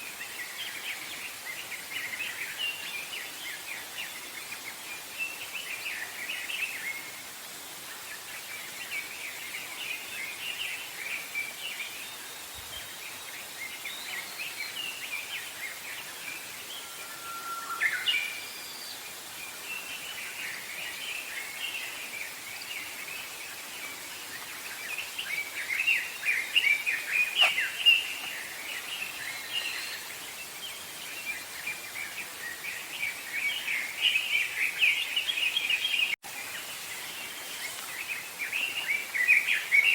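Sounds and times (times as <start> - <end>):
background hiss: 0.0 - 39.9
rising whistled note: 16.7 - 18.8
small birds chirping: 17.8 - 39.9.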